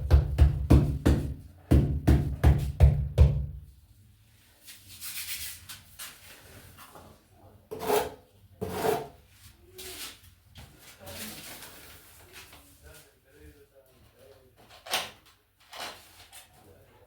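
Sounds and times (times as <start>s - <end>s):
trowel scraping adhesive on wall: 7.7s - 9.2s.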